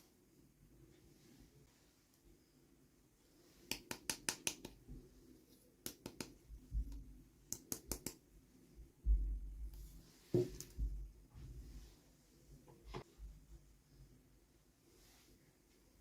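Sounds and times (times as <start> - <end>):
soft low thump: 9.0 - 9.8, 10.4 - 11.7.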